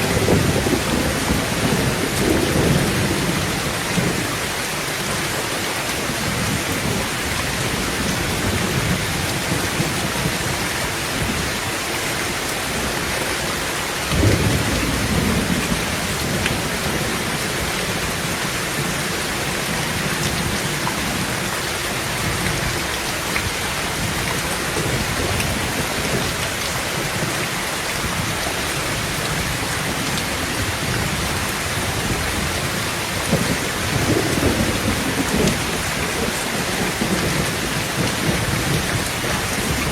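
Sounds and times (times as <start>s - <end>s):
thunderclap: 0.0s - 4.4s, 14.1s - 18.1s
thunder rumbling: 0.0s - 5.3s, 12.4s - 27.4s, 28.0s - 39.9s
heavy rain on a tin roof: 0.0s - 39.9s.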